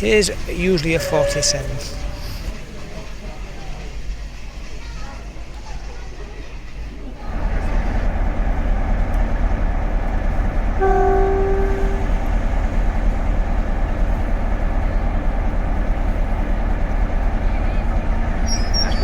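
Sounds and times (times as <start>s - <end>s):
diesel locomotive engine rumble: 0.0s - 19.0s
locomotive horn: 0.7s - 2.6s, 10.7s - 13.1s.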